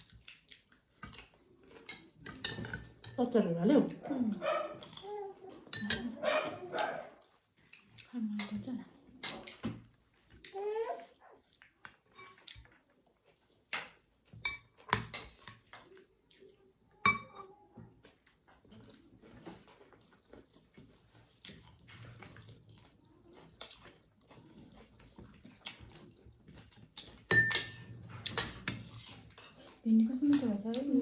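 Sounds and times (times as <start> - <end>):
eating sounds: 0.0 - 2.4, 3.8 - 16.9, 17.5 - 31.0
spoons and plates clinking: 1.9 - 3.4, 5.7 - 6.2, 27.3 - 28.8.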